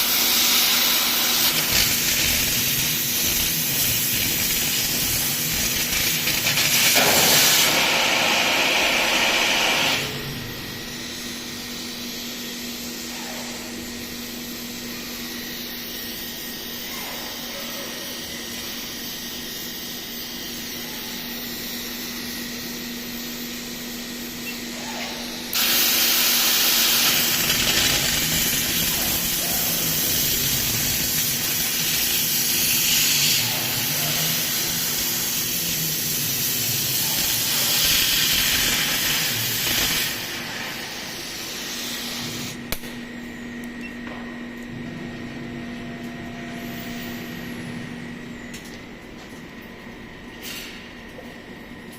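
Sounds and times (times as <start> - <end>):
plasma torch hissing: 0.0 - 10.3, 25.5 - 42.6
machine humming: 0.0 - 50.4.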